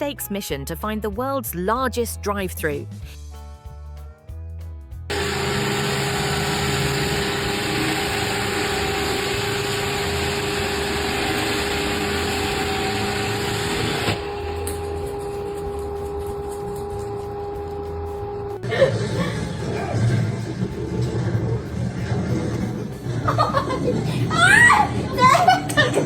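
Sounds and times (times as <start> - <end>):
vehicle engine humming: 5.1 - 23.1.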